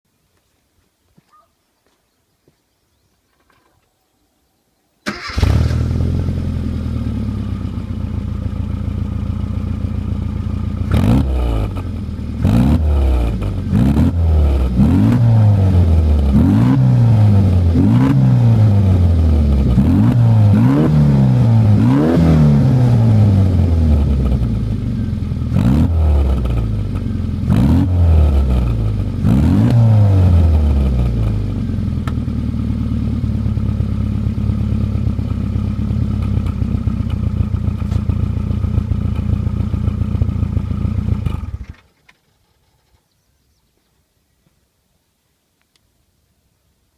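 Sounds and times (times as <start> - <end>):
car engine idling and revving: 5.2 - 41.9.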